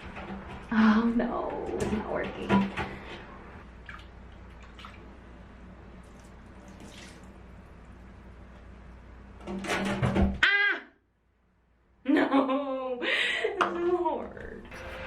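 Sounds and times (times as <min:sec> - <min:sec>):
splashing and scuffling: 0:00.0 - 0:05.2, 0:05.9 - 0:07.9
tap water running: 0:00.0 - 0:10.2.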